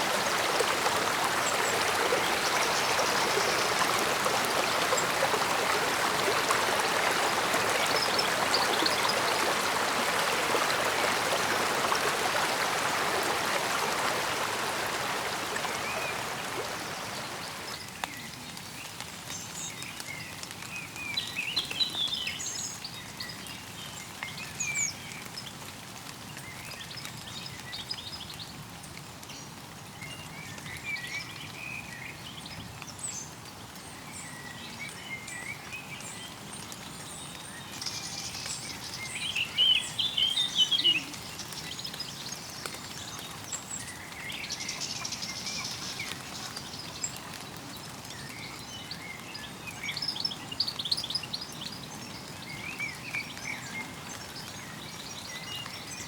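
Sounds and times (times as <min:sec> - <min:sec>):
mountain stream babbling: 0:00.0 - 0:17.9, 0:33.9 - 0:56.0.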